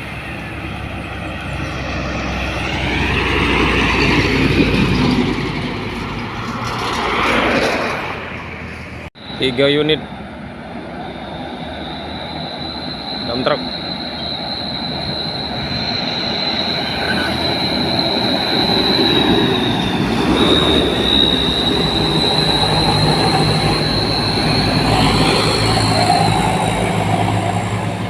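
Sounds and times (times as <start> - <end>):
diesel truck engines under load: 0.0 - 28.0
high-pitched whine: 9.2 - 28.0.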